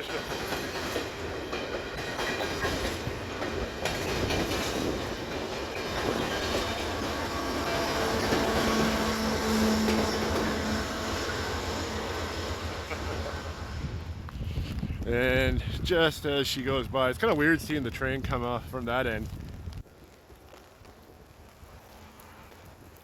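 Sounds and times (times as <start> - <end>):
train wheels clacking on rails: 0.0 - 13.8.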